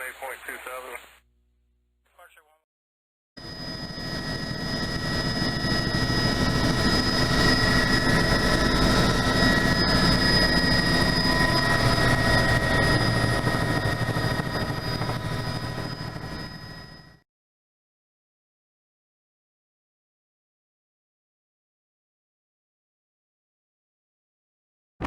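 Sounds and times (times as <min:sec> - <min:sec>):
helicopter rotor rumble: 0:03.4 - 0:17.2
helicopter turbine whine: 0:03.4 - 0:17.2.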